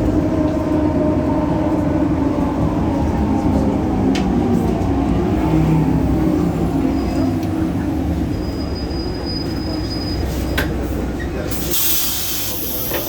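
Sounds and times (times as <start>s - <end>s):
bus diesel engine running: 0.0s - 13.0s
compressed air hiss: 11.6s - 13.0s.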